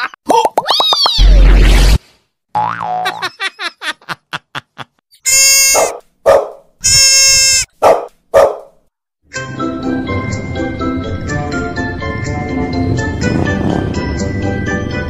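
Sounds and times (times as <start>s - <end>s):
baby goat bleating: 5.2s - 5.9s, 6.8s - 7.7s
dog barking: 5.7s - 6.7s, 7.8s - 8.8s.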